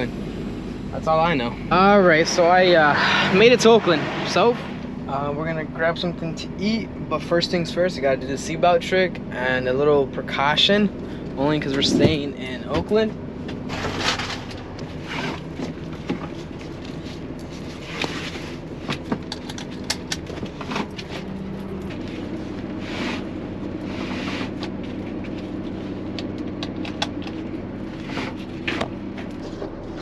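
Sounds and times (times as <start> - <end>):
truck engine humming: 0.0 - 30.0
seatbelt clicks and rustles: 18.9 - 21.1.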